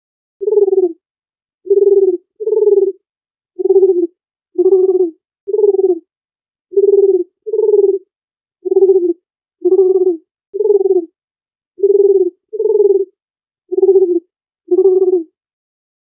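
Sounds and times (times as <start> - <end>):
dove cooing: 0.4 - 1.0, 1.7 - 3.0, 3.6 - 6.1, 6.7 - 11.2, 11.8 - 15.3.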